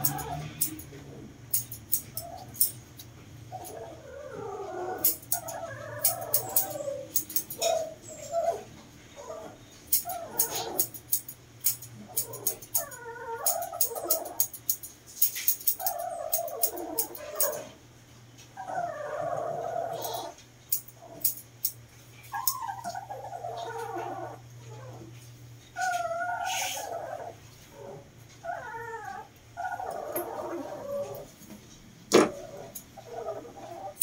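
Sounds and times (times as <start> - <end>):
dog whining and yowling: 3.5 - 11.0, 12.0 - 14.5, 15.7 - 17.8, 18.6 - 20.4, 22.3 - 25.1, 25.7 - 31.4, 32.3 - 34.0.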